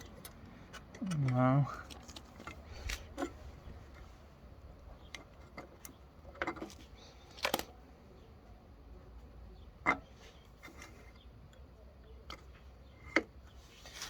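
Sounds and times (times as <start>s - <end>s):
tools clicking and knocking: 0.0s - 4.1s.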